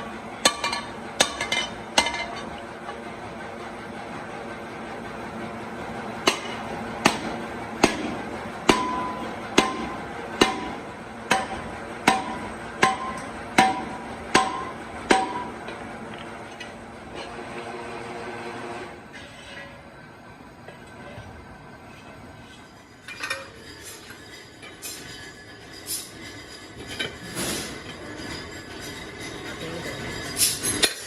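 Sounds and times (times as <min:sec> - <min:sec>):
workshop hum: 0:00.0 - 0:31.0
hammer striking metal: 0:00.4 - 0:02.5, 0:06.2 - 0:15.8.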